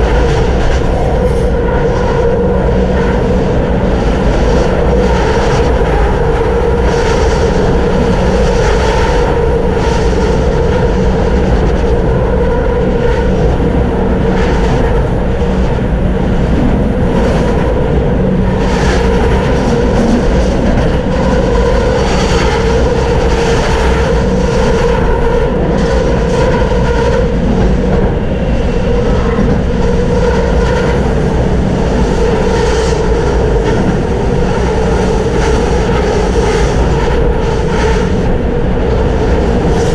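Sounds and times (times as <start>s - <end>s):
steady hum: 0.0s - 39.9s
tram rumbling on rails: 0.0s - 39.9s.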